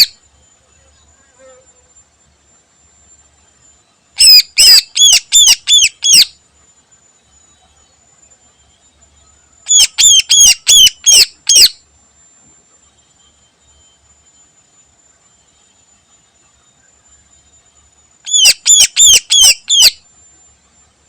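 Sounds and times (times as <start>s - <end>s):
bird calling sharp notes: 4.2s - 6.3s, 9.7s - 11.8s, 18.3s - 20.0s.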